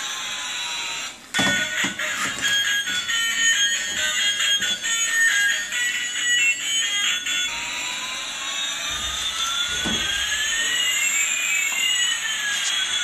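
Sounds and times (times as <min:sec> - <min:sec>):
toy electronic tune: 0:01.4 - 0:13.0
whine gliding up in pitch: 0:02.6 - 0:13.0.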